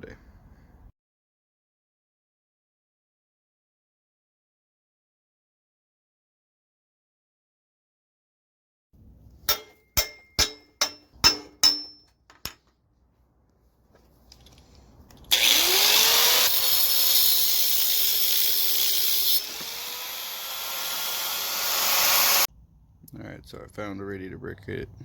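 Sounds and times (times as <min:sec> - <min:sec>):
sharp ringing metal hits: 0:09.5 - 0:12.1
electric grinder on metal: 0:15.3 - 0:22.5.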